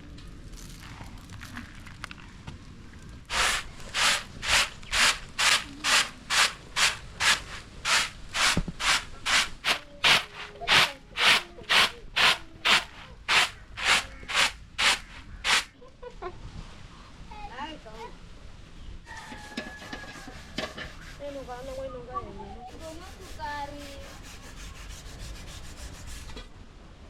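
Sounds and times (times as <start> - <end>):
grinding stone rasping: 3.3 - 15.7, 22.7 - 26.4.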